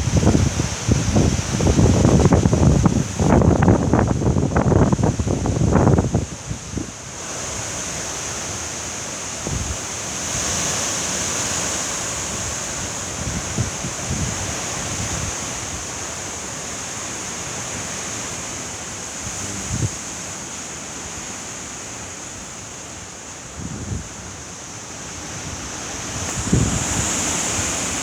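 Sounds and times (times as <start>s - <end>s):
wind gusts buffeting microphone: 0.0s - 8.2s, 9.4s - 10.8s, 11.4s - 16.2s, 19.2s - 20.3s, 23.5s - 24.5s, 25.1s - 28.0s
heavy rain: 0.0s - 22.0s, 23.1s - 28.0s.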